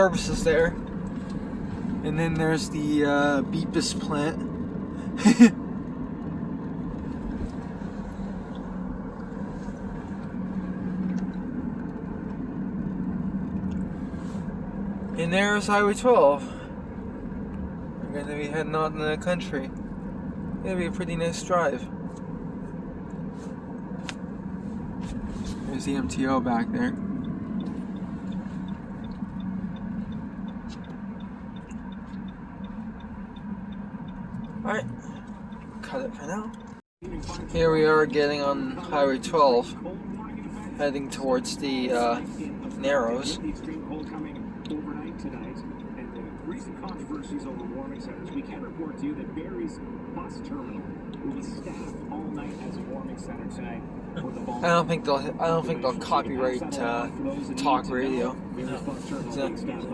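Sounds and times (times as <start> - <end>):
constant low hum: 0.0 - 59.9
road and tyre noise: 0.0 - 59.9
turn signal ticking: 0.0 - 59.9.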